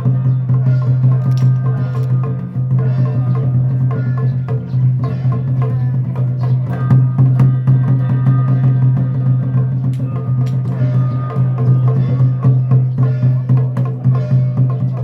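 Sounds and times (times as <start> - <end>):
drums: 0.0 - 15.0
wood block clacks: 9.8 - 10.9.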